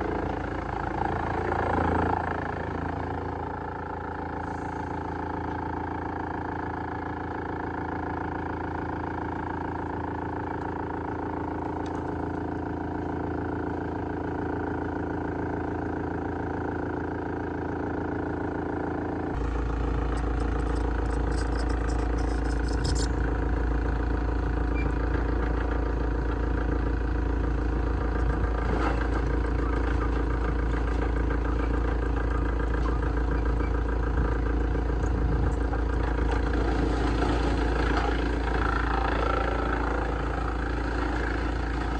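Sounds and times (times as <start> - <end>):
wood shredder running: 0.0 - 41.9
deep low rumble: 32.6 - 37.4.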